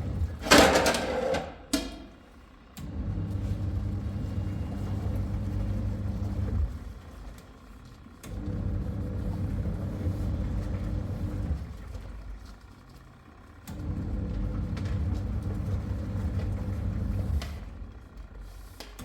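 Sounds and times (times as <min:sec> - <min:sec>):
machine motor humming: 0:02.8 - 0:06.9.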